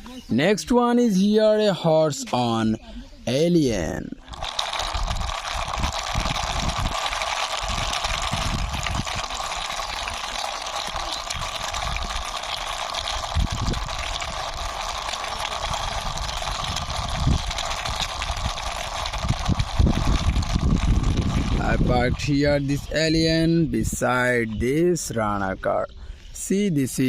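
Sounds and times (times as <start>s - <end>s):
toy vehicle wheels rolling: 4.2s - 22.9s.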